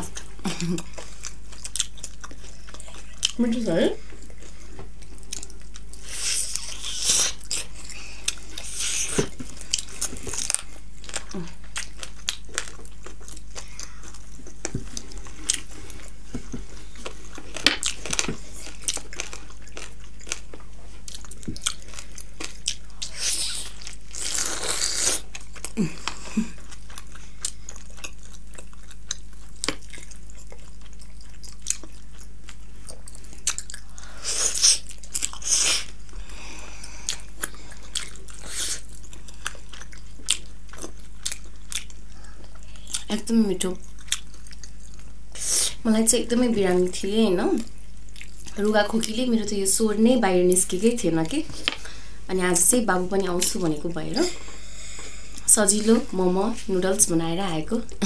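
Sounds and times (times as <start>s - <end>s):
wet biting and chewing: 0.0s - 3.4s, 4.1s - 36.0s, 36.9s - 43.1s.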